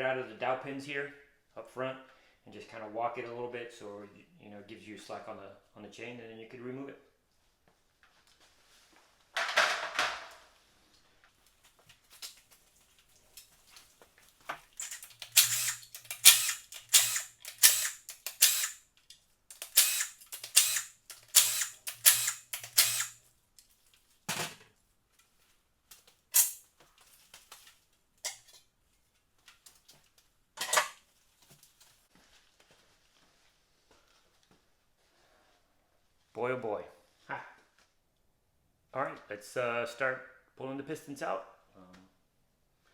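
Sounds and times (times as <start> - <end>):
power tool motor hum: 14.8 - 18.8, 19.6 - 23.2.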